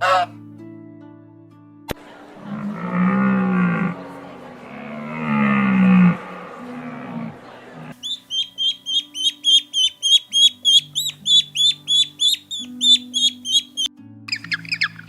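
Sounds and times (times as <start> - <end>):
background music with low notes: 0.0 - 15.0
harsh chattering bird call: 4.9 - 15.0
bird peeping: 8.0 - 15.0.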